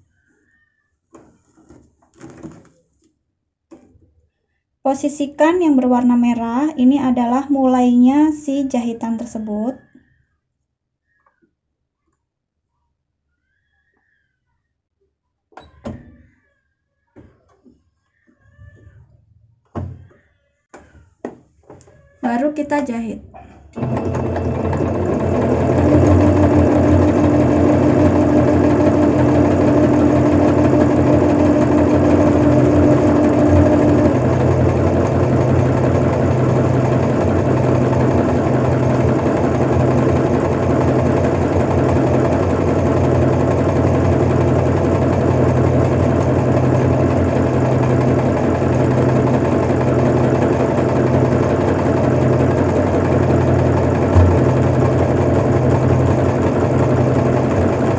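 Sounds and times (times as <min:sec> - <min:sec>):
sewing machine running: 0:23.8 - 0:57.9
higher hum: 0:54.1 - 0:57.6.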